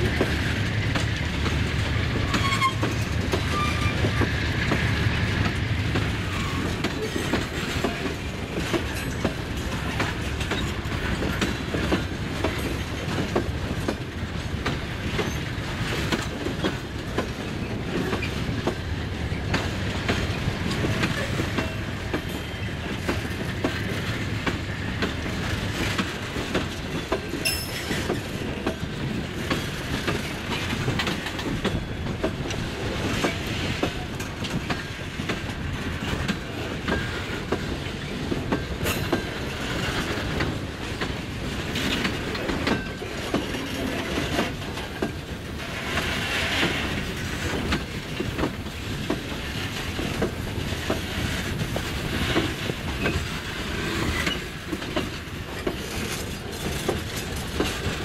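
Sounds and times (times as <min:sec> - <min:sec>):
train wheels rumbling: 0:00.0 - 0:58.0
wheels clacking over rail joints: 0:00.0 - 0:58.0
wheel squeals: 0:02.3 - 0:04.3.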